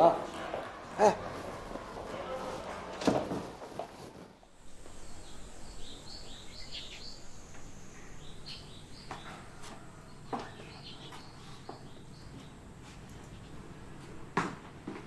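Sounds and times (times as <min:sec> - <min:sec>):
low background noise: 0:00.0 - 0:15.0
small birds chirping: 0:04.6 - 0:13.7.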